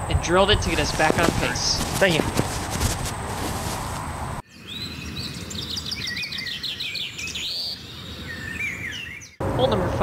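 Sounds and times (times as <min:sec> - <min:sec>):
songbirds chirping: 0:00.0 - 0:10.0
steady rushing noise: 0:00.6 - 0:04.4.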